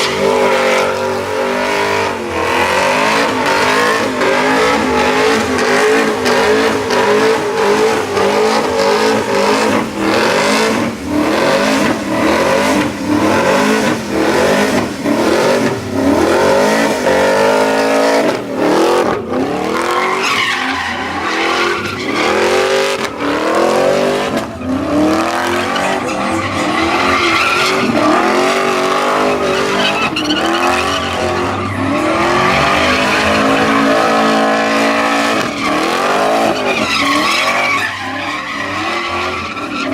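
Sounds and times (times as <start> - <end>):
truck engine revving hard: 0.0 - 39.9
tyres screeching and hissing: 23.8 - 39.9.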